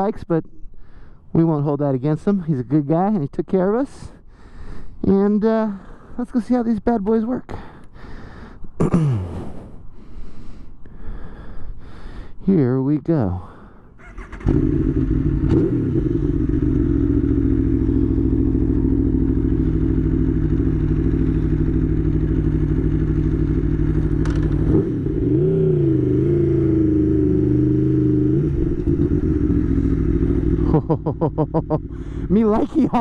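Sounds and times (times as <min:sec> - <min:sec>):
motorcycle engine running: 0:14.0 - 0:33.0.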